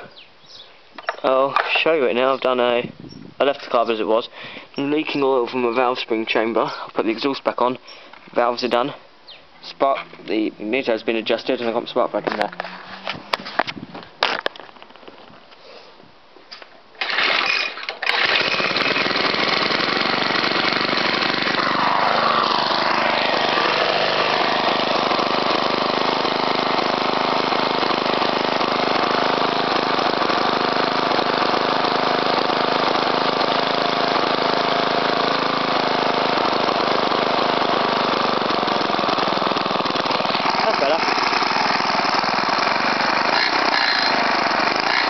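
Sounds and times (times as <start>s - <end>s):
lawn mower engine running: 11.3s - 13.7s, 17.0s - 45.0s.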